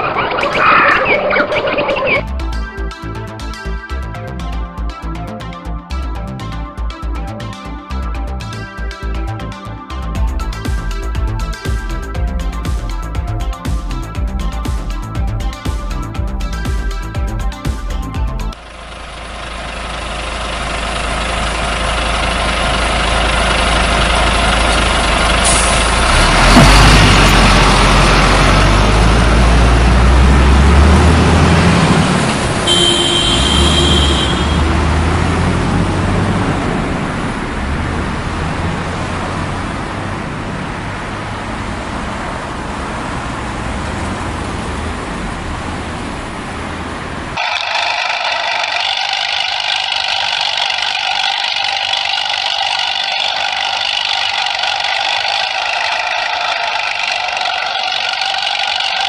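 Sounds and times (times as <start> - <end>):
truck engine rumbling: 0.0 - 59.0
brief high tone: 32.7 - 35.0.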